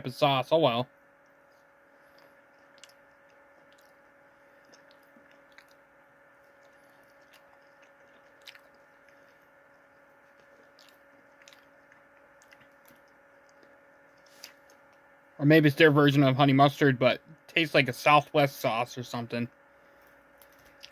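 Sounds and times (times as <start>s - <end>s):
low steady hum: 0.0s - 20.9s
chewing with mouth clicks: 1.2s - 15.0s, 19.9s - 20.9s.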